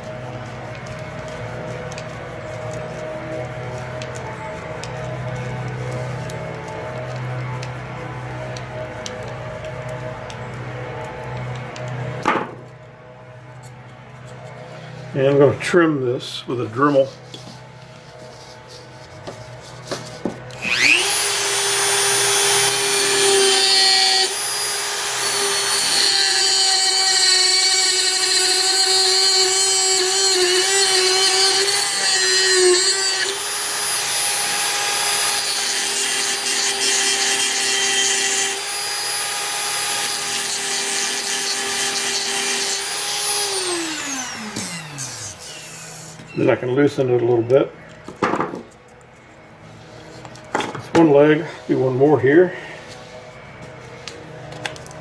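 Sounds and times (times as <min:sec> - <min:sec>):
rotary tool grinding screw: 0:20.5 - 0:46.3.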